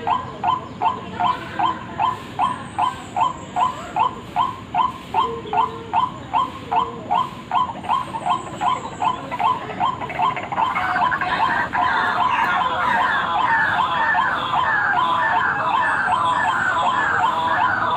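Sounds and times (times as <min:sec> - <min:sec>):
waterhen calling: 0:00.0 - 0:17.9.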